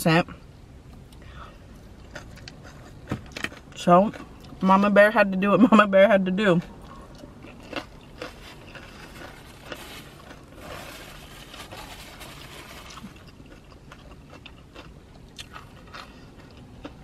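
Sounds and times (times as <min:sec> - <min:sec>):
soft crunches of chewing: 0:01.1 - 0:04.6, 0:06.6 - 0:17.0
chewing with mouth clicks: 0:06.6 - 0:10.4, 0:12.9 - 0:17.0.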